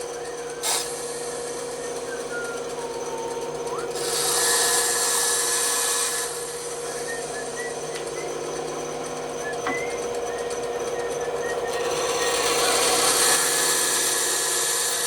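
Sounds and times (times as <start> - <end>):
bandsaw humming: 0.0 - 15.0
saw blade hissing through wood: 0.6 - 1.6, 4.0 - 7.1, 12.0 - 15.0.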